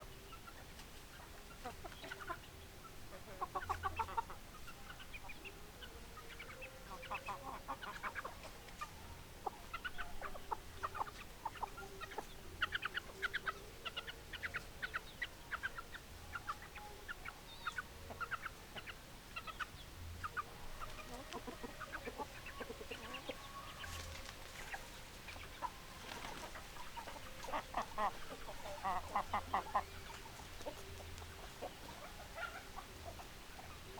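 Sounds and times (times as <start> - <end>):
chickens clucking: 0.0 - 33.9
chicken drawn-out calls: 6.4 - 33.8.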